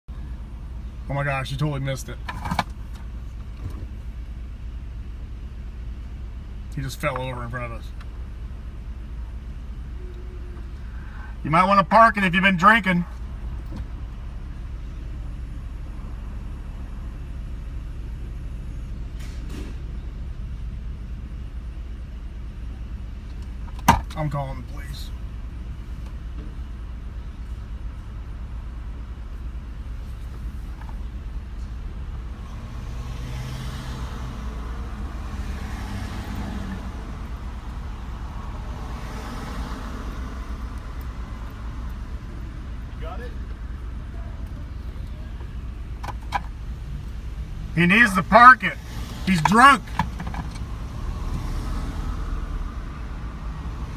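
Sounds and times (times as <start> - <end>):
vehicle engine and road rumble: 0.0 - 53.9
car cabin rumble: 23.3 - 24.9, 40.9 - 50.8.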